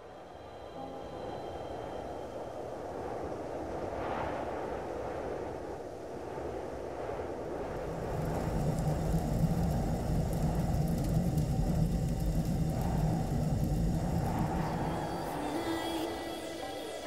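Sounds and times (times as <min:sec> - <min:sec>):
car engine low drone: 0:07.8 - 0:16.2.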